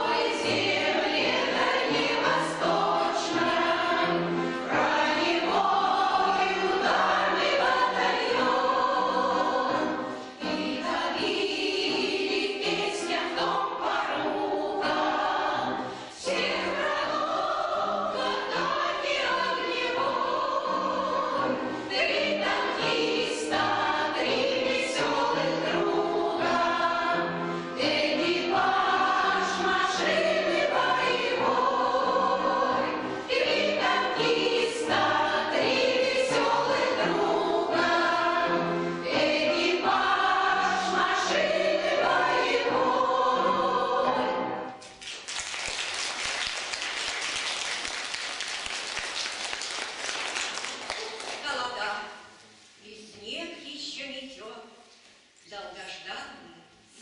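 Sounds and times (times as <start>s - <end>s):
choir singing: 0.0s - 44.8s.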